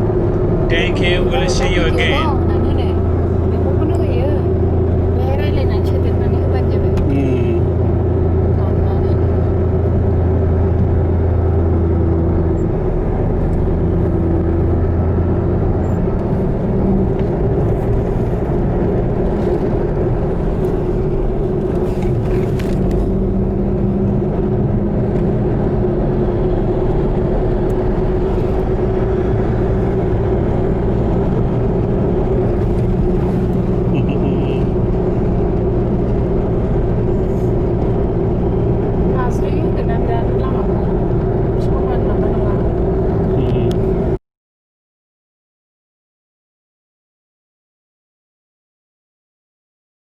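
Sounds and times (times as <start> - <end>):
car engine hum: 0.0 - 44.2
road noise: 0.0 - 44.2.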